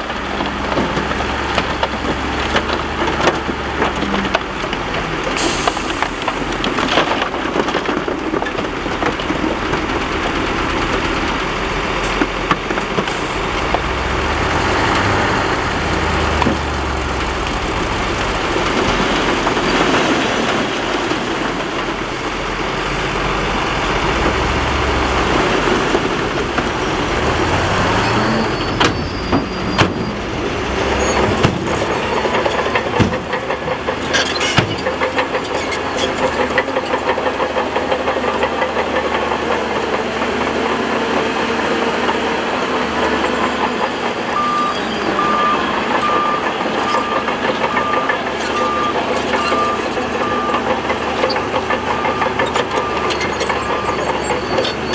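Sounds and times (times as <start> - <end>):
bulldozer diesel engine: 0.0 - 54.9
sharp knocks and clatters: 31.2 - 39.3.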